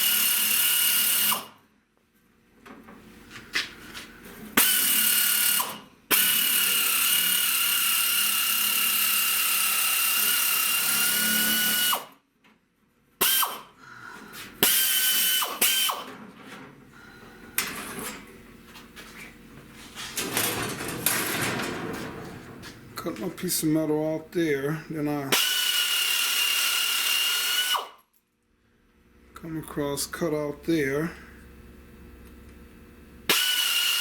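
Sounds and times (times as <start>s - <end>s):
power tool cutting sheet metal: 0.0s - 1.6s, 4.6s - 12.2s, 13.2s - 13.7s, 14.6s - 16.1s, 25.3s - 28.0s, 33.3s - 34.0s.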